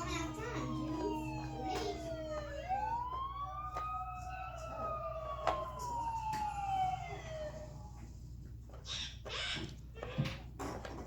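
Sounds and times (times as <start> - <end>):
police sirens wailing: 0.0 - 8.2.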